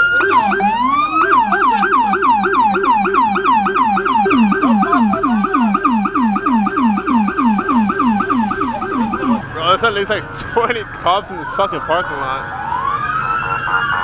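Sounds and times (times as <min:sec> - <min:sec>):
police siren yelping: 0:00.0 - 0:14.0.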